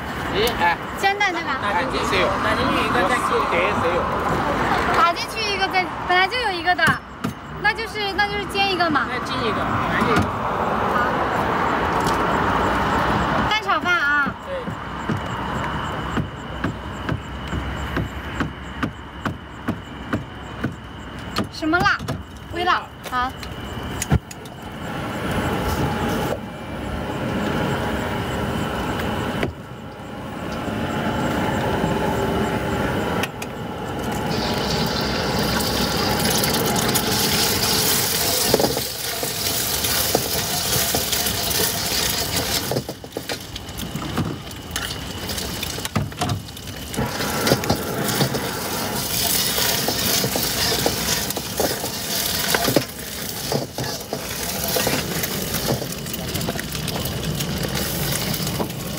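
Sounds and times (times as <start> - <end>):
eggs sizzling in oil: 34.0 - 58.9.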